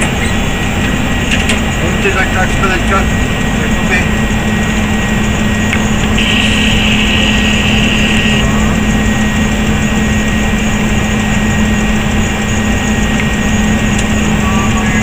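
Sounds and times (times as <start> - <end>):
aircraft cockpit air and engine noise: 0.0 - 15.0
faint high whines: 5.4 - 10.8, 12.5 - 15.0.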